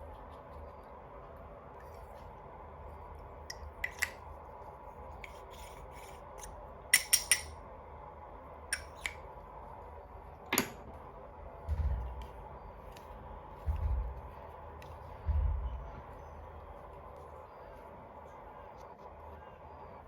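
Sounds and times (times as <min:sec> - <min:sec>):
dull low thump: 0:11.6 - 0:12.6, 0:13.6 - 0:14.4, 0:15.1 - 0:16.1.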